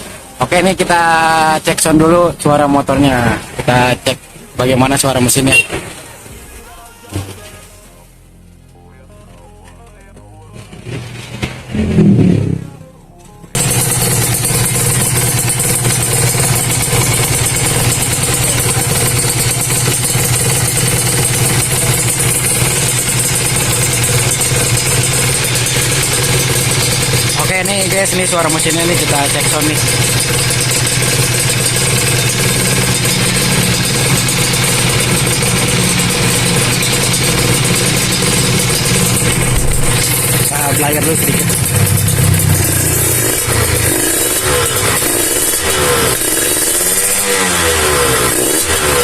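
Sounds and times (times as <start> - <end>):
metallic engine noise: 0.0 - 49.0
motorcycle engine idling: 13.6 - 49.0.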